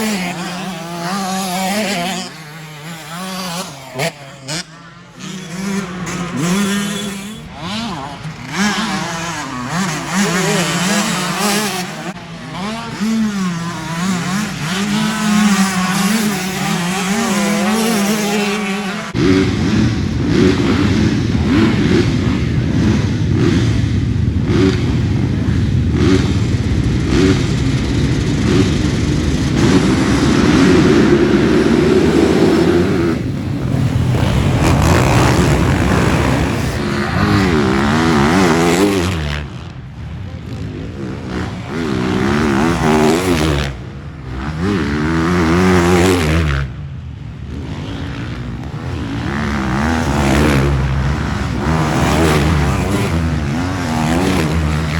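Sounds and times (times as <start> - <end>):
dirt bike engines revving: 0.0 - 54.9
loud low engine rumble: 19.4 - 38.2.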